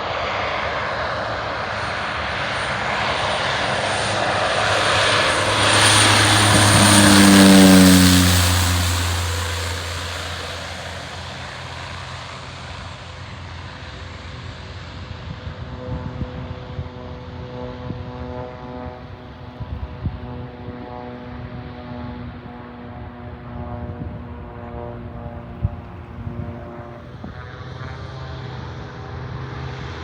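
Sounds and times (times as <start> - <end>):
floatplane propeller engine: 0.0 - 30.0
faint engine drone: 1.9 - 21.3.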